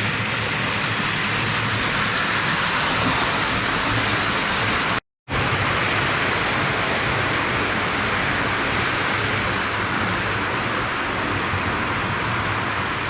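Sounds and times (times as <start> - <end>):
toy train wheels on rails: 0.0 - 5.0.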